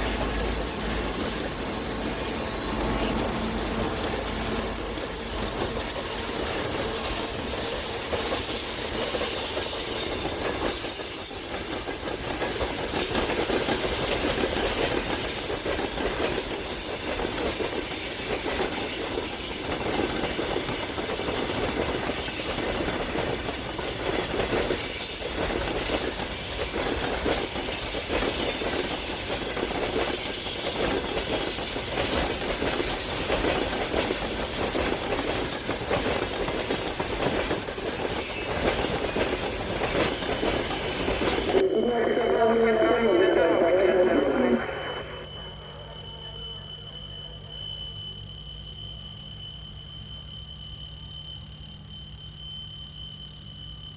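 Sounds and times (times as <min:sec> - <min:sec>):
train wheels clicking: 0:00.0 - 0:41.6
train running noise: 0:00.0 - 0:53.9.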